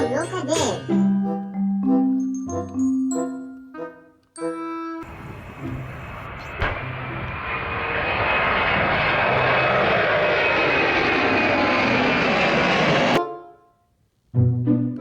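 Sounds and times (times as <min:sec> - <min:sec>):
loud rushing engine noise: 0:05.0 - 0:13.2.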